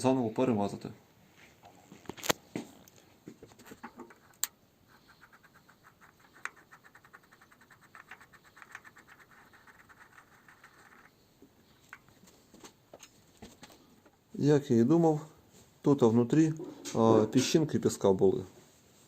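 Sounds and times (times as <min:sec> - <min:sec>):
rapid even ticking: 0:04.0 - 0:11.2.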